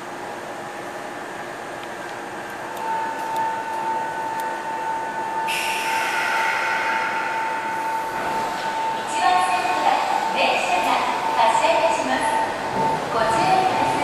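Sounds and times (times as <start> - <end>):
hiss of released air: 5.5 - 8.8.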